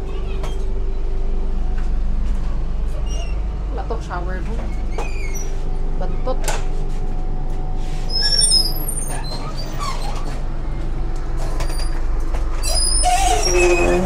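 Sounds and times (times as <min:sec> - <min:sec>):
train coach rumbling: 0:00.0 - 0:14.0
carriage creaks and squeaks: 0:04.6 - 0:05.6, 0:08.1 - 0:10.4, 0:11.4 - 0:14.0.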